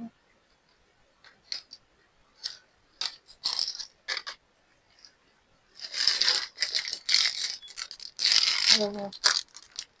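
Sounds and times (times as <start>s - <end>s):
plastic packets clicking and rattling: 2.4s - 4.4s, 5.8s - 10.0s.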